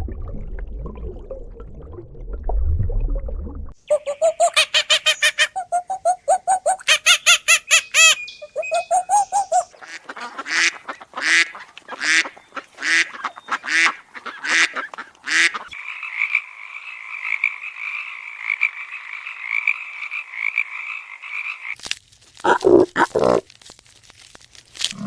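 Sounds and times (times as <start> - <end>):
rapid pitched animal calls: 3.9 - 10.7.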